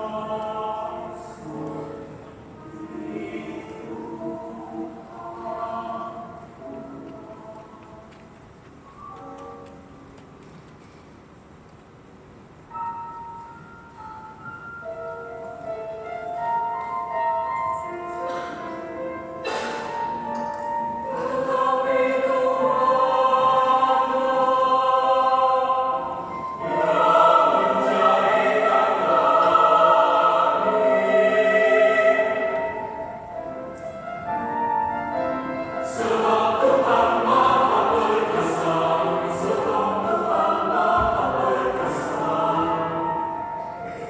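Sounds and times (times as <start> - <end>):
choir singing: 0.0 - 8.2, 17.2 - 44.0.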